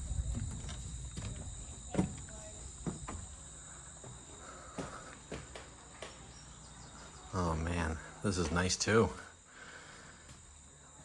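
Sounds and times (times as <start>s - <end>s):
footsteps: 0.0s - 6.4s.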